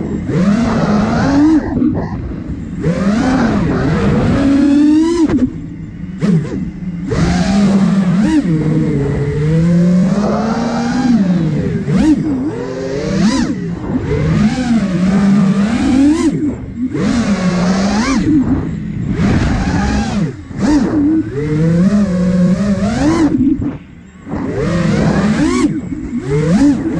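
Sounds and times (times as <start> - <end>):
quadcopter motors buzzing: 0.0 - 26.9
wind noise rushes: 10.1 - 26.9.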